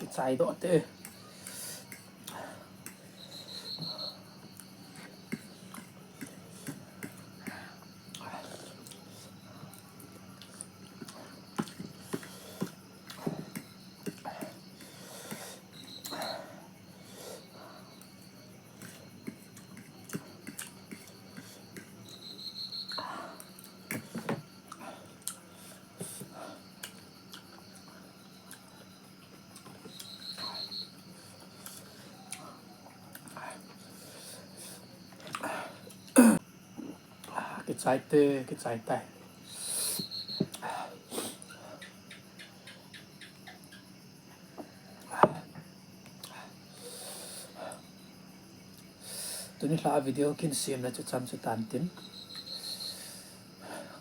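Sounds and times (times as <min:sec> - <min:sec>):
insect chirping trill: 0:00.0 - 0:54.0
people chewing and smacking: 0:01.0 - 0:37.4.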